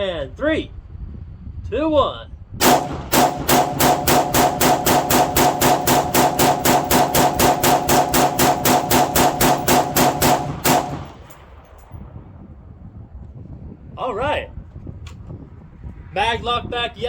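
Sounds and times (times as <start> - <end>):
rifle semi-automatic fire: 2.6 - 11.7.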